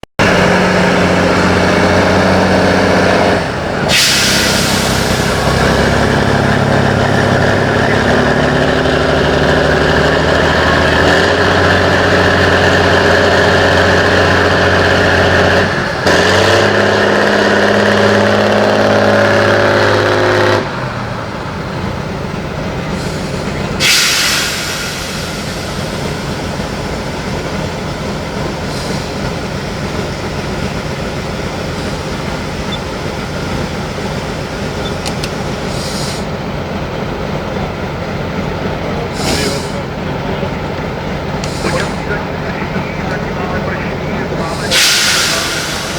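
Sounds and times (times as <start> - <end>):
truck diesel engine under load: 0.0 - 45.9
compressed air hiss: 3.9 - 6.6, 23.0 - 26.8, 28.6 - 29.3, 34.9 - 36.3, 39.1 - 39.9, 41.4 - 42.2, 44.4 - 45.9.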